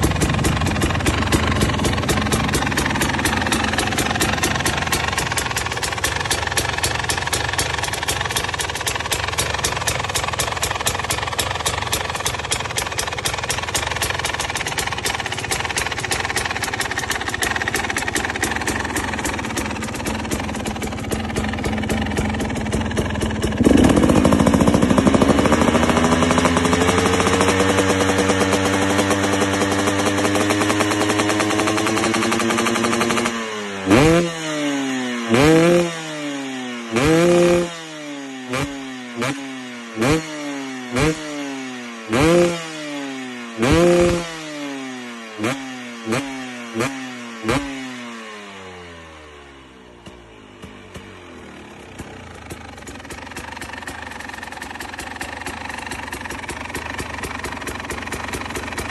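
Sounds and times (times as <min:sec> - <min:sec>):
exhaust popping: 0:00.0 - 0:33.3
two-stroke engine revving: 0:00.0 - 0:58.9.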